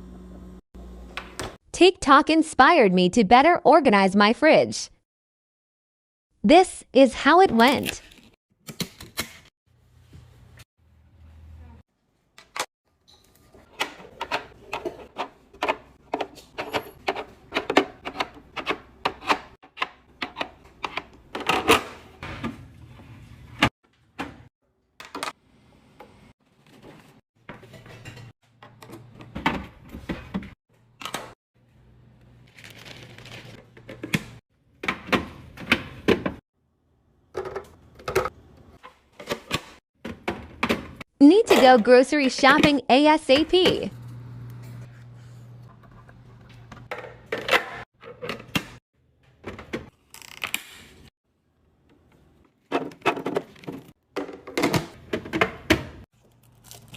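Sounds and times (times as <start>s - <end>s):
plastic containers clattering on shelves: 52.7s - 56.0s.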